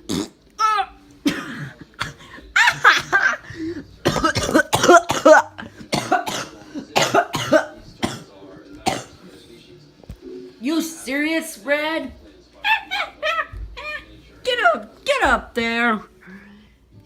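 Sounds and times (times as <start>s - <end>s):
person making squawking noises: 0.6s - 1.0s.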